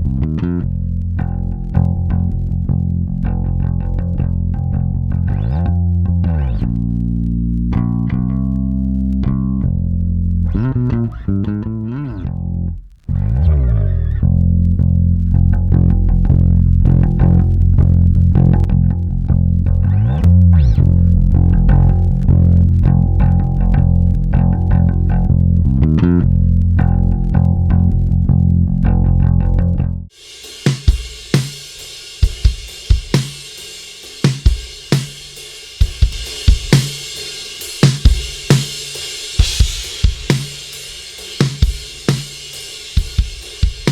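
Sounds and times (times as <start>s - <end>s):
electric bass guitar bassline: 0.0s - 30.1s
drum kit playing: 30.1s - 43.9s.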